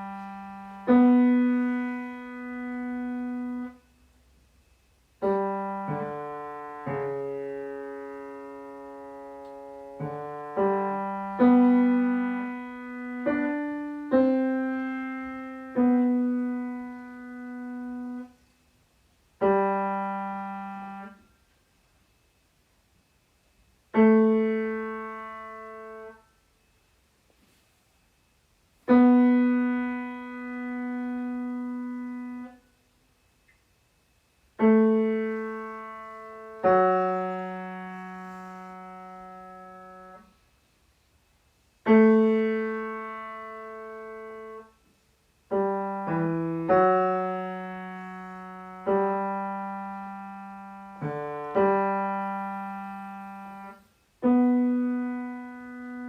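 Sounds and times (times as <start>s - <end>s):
piano playing slow single notes: 0.0s - 3.8s, 5.2s - 18.4s, 19.4s - 21.3s, 28.9s - 32.6s, 34.6s - 40.3s, 41.9s - 44.8s, 45.5s - 56.0s.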